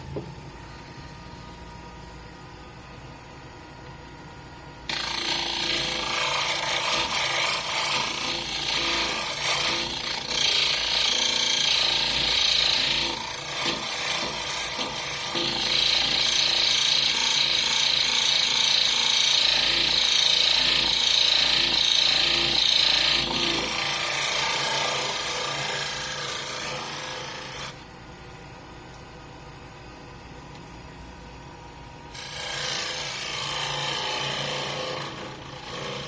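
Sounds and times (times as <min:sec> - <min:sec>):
wood lathe humming: 0:04.9 - 0:27.8, 0:32.2 - 0:36.0.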